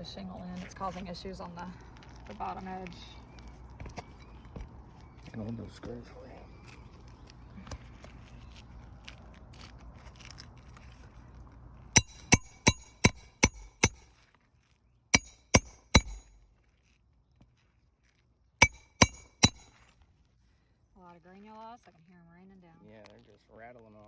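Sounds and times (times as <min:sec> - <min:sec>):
hammer striking metal tool: 0:12.0 - 0:14.1, 0:15.2 - 0:16.4, 0:18.6 - 0:19.8.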